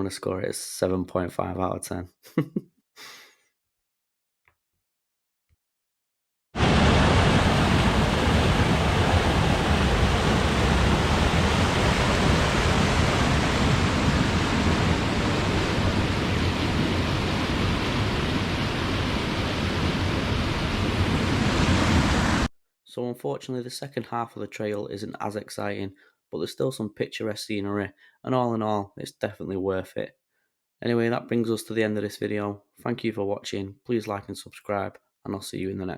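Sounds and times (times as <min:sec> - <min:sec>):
waterfall roaring: 0:06.6 - 0:22.5.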